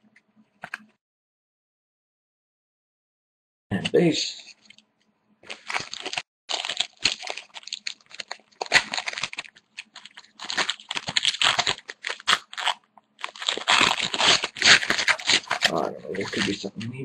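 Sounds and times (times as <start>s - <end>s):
wrapper tearing and crinkling: 5.4s - 16.6s.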